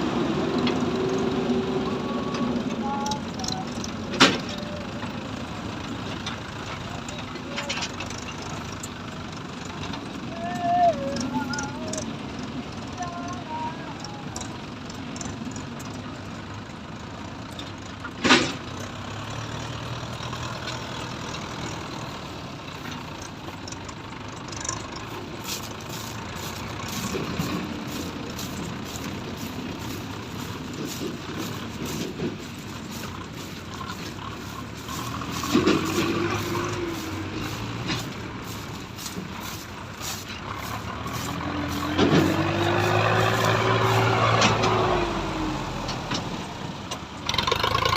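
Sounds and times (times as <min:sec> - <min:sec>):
tractor diesel engine revving: 0:00.0 - 0:47.9.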